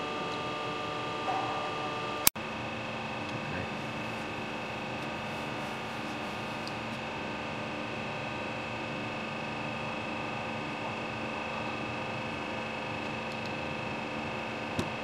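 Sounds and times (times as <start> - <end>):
pulsing machine tone: 0.0 - 2.3
lathe machine hum: 0.0 - 15.0.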